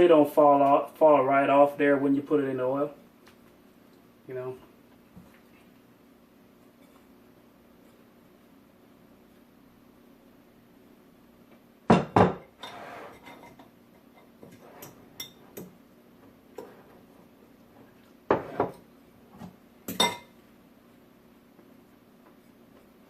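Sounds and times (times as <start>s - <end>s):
dishes and utensils clattering: 12.0s - 15.7s, 19.9s - 20.4s.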